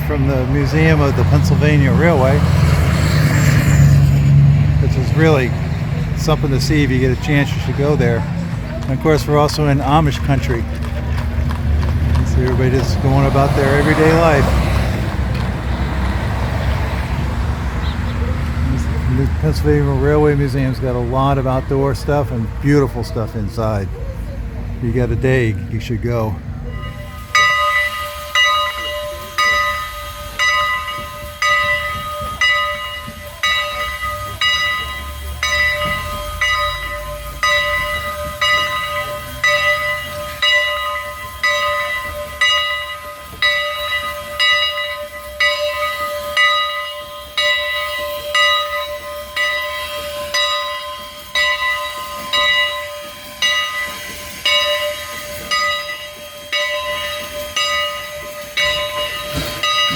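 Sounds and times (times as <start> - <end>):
locomotive bell ringing: 0.0 - 59.9
steam hissing: 26.8 - 59.9.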